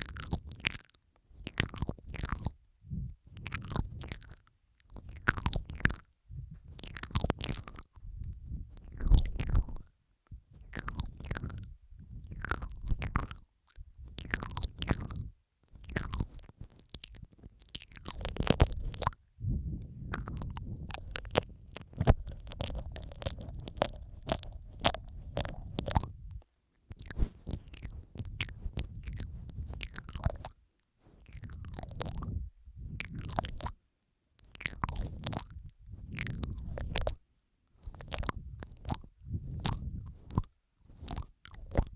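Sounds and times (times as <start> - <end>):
wet mouth clicks and smacks: 0.0 - 19.2, 20.0 - 33.8, 34.4 - 41.9.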